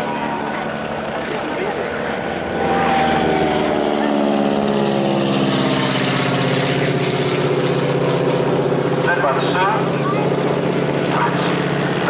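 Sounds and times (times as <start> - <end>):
propeller plane flying past: 0.0 - 12.0.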